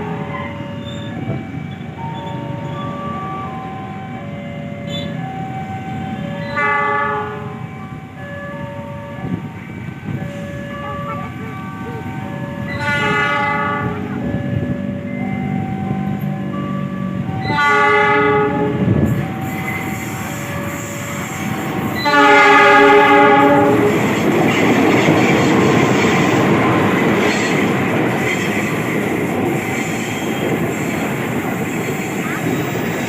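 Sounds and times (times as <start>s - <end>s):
level crossing warning alarm: 0.0s - 33.0s
train wheels rumbling on rails: 0.0s - 33.0s
locomotive horn blasts: 6.4s - 7.6s, 12.7s - 14.2s, 17.4s - 24.1s.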